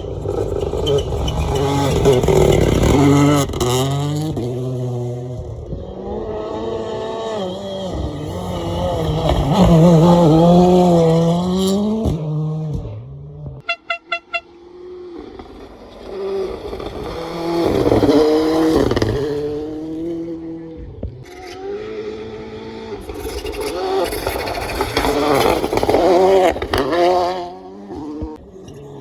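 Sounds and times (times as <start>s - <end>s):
rally car engine revving: 0.0s - 29.0s
short beeps: 13.6s - 14.6s.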